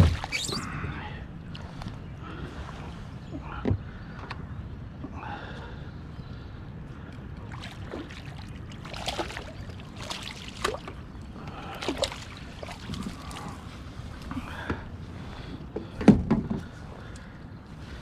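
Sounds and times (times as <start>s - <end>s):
water washing against kayak hull: 0.0s - 0.6s, 7.5s - 14.5s.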